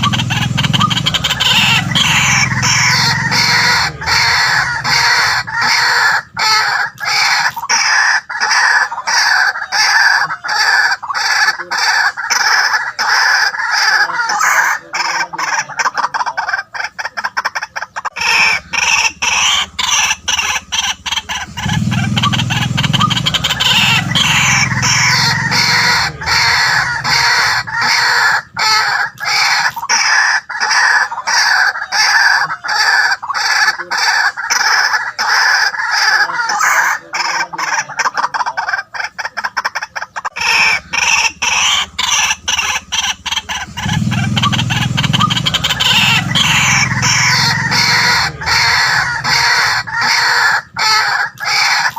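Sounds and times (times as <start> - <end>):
waterhen harsh kwak calls: 0.0 - 51.9
low deep sound: 18.2 - 28.7, 40.4 - 50.8.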